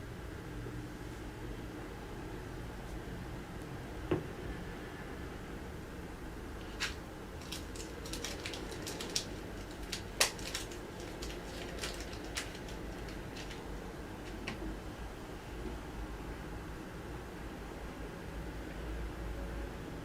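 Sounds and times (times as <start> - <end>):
low room hum: 0.0 - 20.0
soft knock: 4.1 - 4.3.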